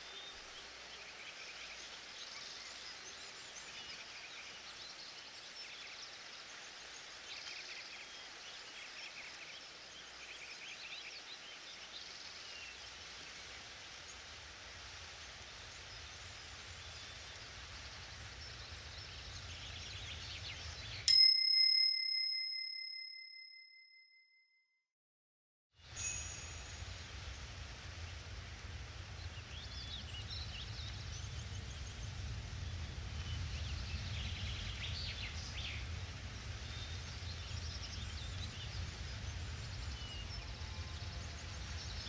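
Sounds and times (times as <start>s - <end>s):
bell ding: 21.1s - 24.2s, 25.9s - 27.1s.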